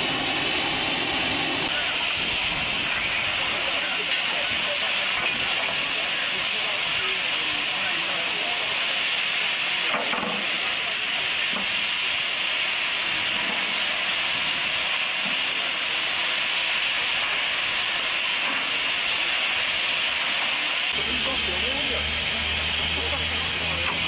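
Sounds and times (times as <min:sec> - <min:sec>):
steam locomotive hissing: 0:00.0 - 0:24.0.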